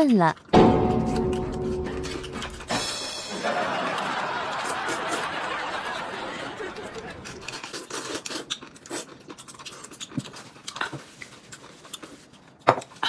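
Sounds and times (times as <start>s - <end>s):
sharp knock: 0.6s - 3.3s
wet chewing: 6.9s - 13.0s.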